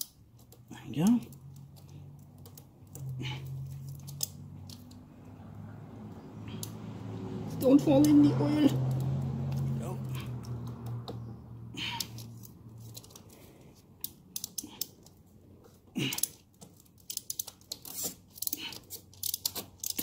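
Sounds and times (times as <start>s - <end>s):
oil filter wrench clicks and scrapes: 16.1s - 20.0s.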